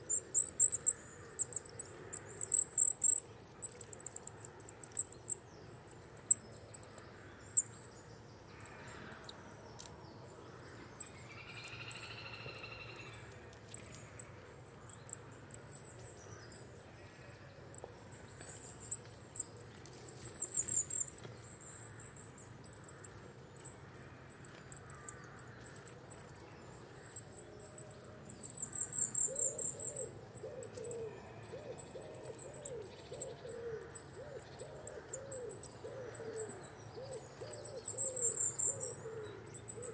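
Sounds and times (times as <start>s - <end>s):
high-pitched bird calls and trills: 10.6s - 39.9s.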